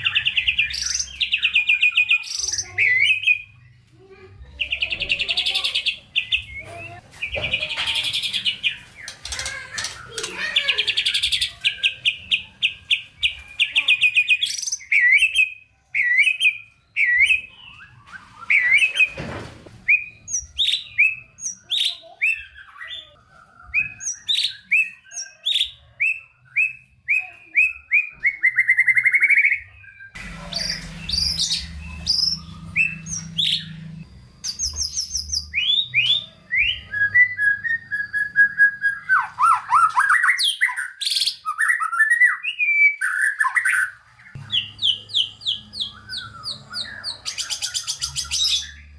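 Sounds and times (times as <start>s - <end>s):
bird singing varied song: 0.0s - 48.9s.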